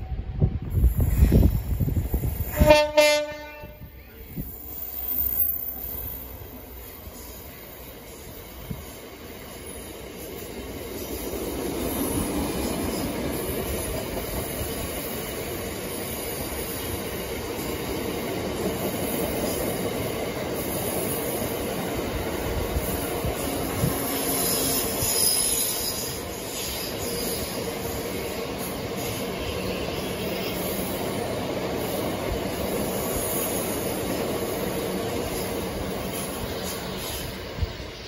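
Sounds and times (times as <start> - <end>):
steel wheels rumbling on rail: 0.0 - 38.0
high wheel squeal: 4.4 - 7.9, 23.8 - 31.0.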